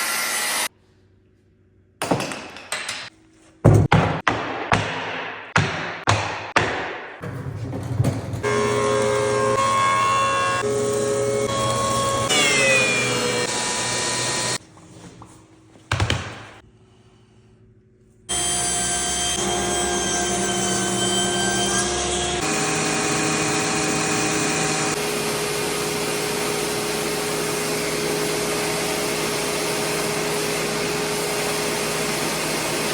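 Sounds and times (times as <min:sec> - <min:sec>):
power tool motor whining: 0:08.5 - 0:14.6, 0:18.3 - 0:32.9.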